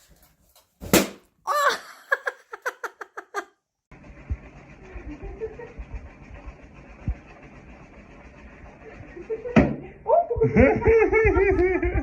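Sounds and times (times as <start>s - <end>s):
person laughing: 1.5s - 3.6s, 10.3s - 12.0s.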